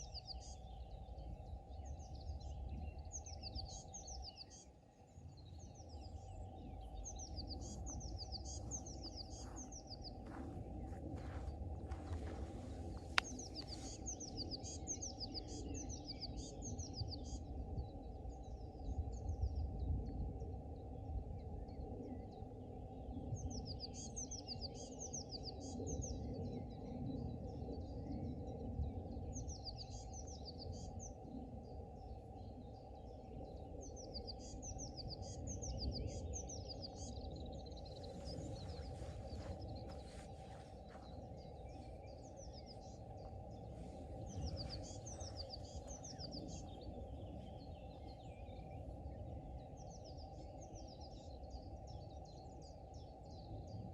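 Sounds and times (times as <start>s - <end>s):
songbird chirping: 0.0s - 17.6s, 29.2s - 53.9s
low background rumble: 0.0s - 21.8s, 29.3s - 53.9s.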